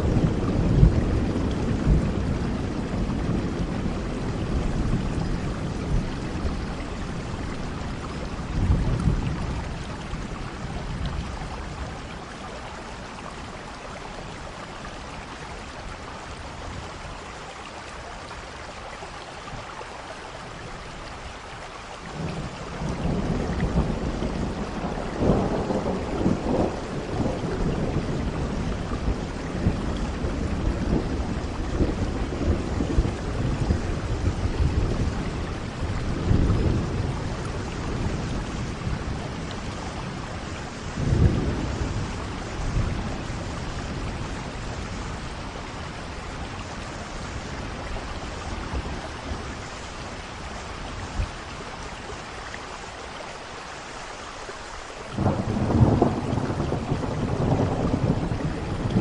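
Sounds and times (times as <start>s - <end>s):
rolling thunder: 0.0s - 12.3s, 22.2s - 51.3s, 55.2s - 59.0s
steady rain falling: 0.0s - 59.0s.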